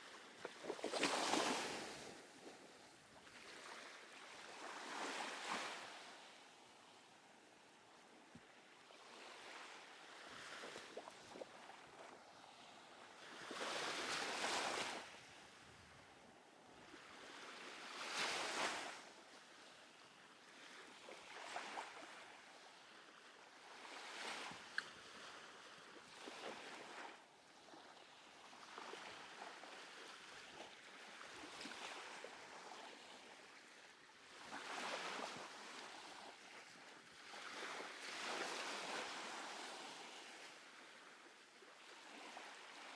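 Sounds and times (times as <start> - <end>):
small waves breaking on sand: 0.0 - 42.9.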